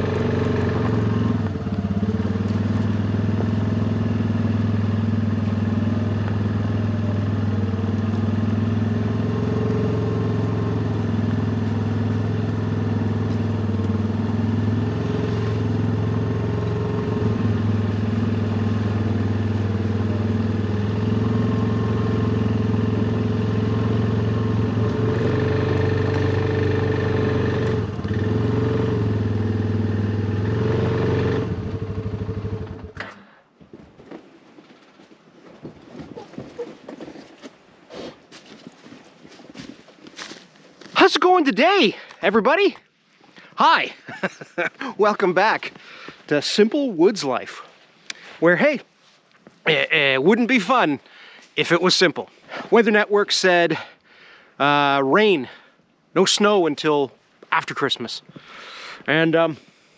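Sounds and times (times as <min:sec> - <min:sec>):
vehicle engine running: 0:00.0 - 0:33.4.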